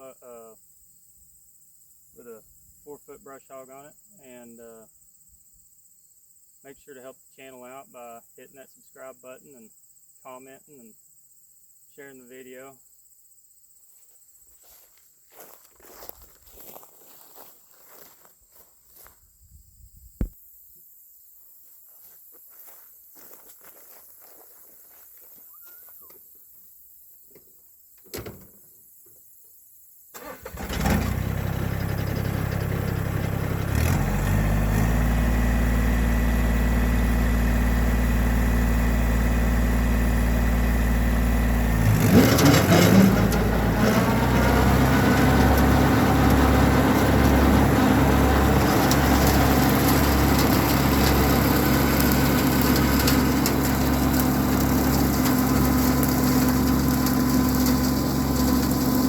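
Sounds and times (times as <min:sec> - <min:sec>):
tractor diesel engine starting: 0:30.1 - 0:59.0
tractor engine running: 0:30.2 - 0:59.0.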